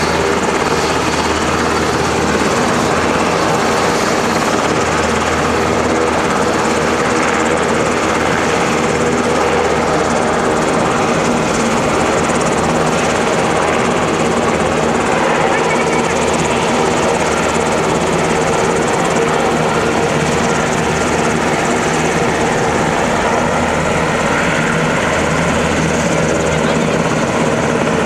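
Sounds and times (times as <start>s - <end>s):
helicopter rotor and engine: 0.0s - 28.0s.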